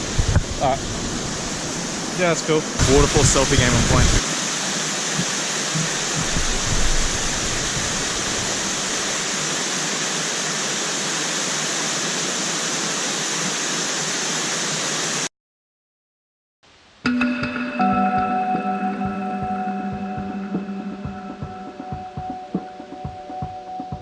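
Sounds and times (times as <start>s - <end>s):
waterfall rushing: 0.0s - 15.3s.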